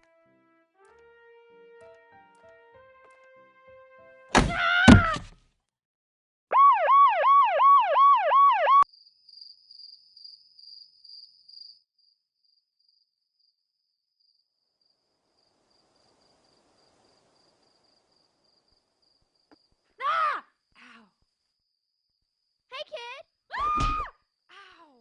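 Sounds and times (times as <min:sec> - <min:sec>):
emergency siren wailing: 0:06.5 - 0:08.9.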